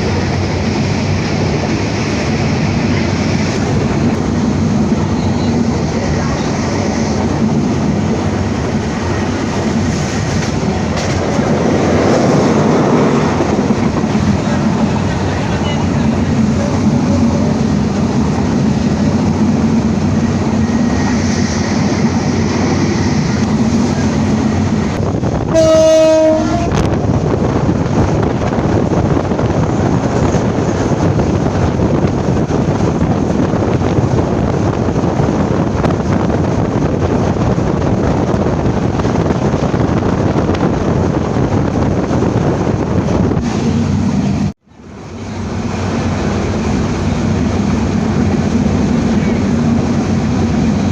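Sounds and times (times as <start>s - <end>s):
train rumbling on rails: 0.0s - 50.9s
train horn: 25.5s - 27.0s.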